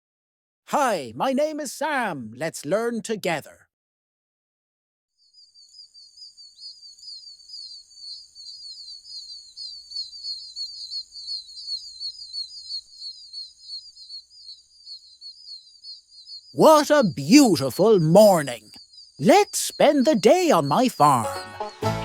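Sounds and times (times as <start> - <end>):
small birds chirping: 5.2 - 21.9.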